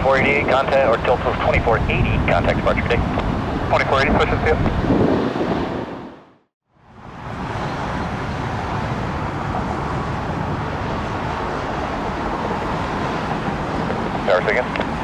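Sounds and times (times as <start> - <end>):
jet aircraft engine rushing: 0.0 - 6.2, 6.9 - 15.0.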